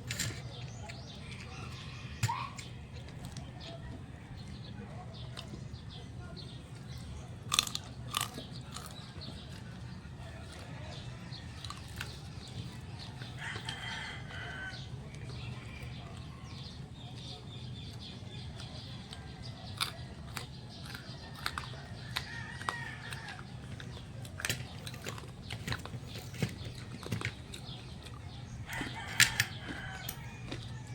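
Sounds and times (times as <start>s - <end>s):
crunchy chewing: 0.0s - 30.9s
rooster crowing: 13.3s - 14.9s, 28.6s - 30.9s.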